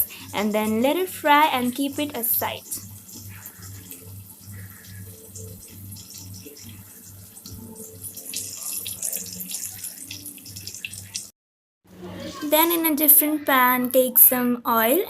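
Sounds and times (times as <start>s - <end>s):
chicken deep-frying in oil: 0.0s - 11.3s.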